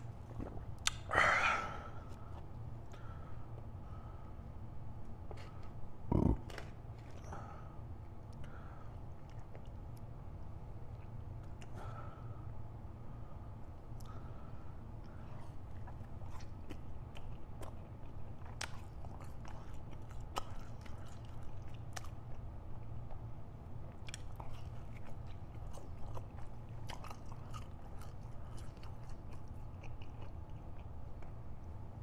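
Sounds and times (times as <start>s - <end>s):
steady low hum: 0.0s - 32.0s
wet mouth clicks and smacks: 0.8s - 1.1s
biting and chewing: 15.0s - 31.8s.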